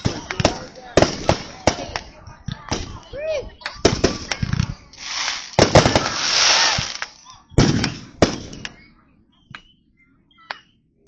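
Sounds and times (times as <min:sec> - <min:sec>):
firework bangs: 0:00.0 - 0:03.0, 0:03.8 - 0:08.7
firework crackling hiss: 0:04.9 - 0:07.8.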